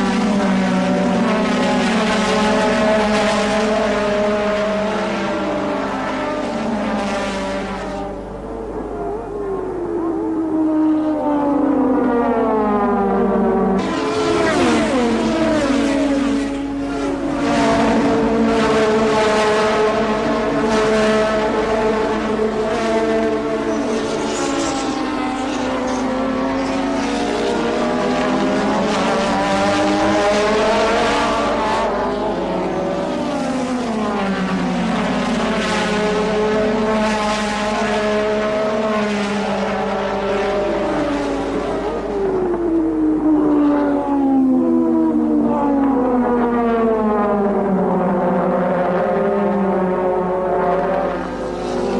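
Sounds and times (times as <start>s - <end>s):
race car engines revving: 0.0s - 51.9s.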